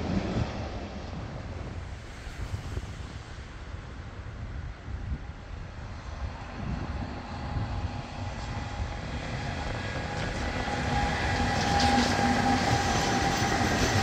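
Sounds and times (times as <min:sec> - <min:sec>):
train wheels rumbling on rails: 0:05.9 - 0:14.0
locomotive whine: 0:06.4 - 0:14.0.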